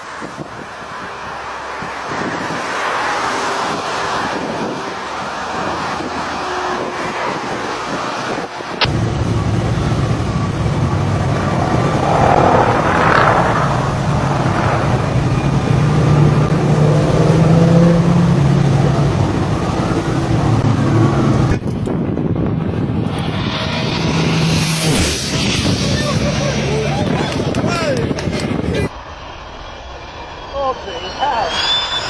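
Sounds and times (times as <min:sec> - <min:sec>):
propeller aircraft engine droning: 0:00.0 - 0:32.0
rushing air noise: 0:06.8 - 0:32.0.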